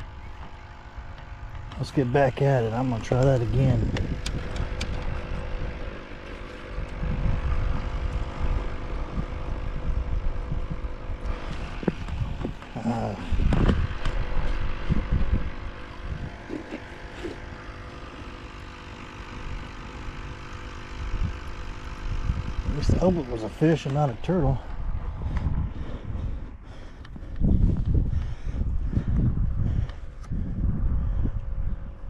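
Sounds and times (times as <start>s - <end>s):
low rumbling wind: 0.0s - 16.6s, 19.4s - 32.0s
distant engine drone: 0.0s - 32.0s.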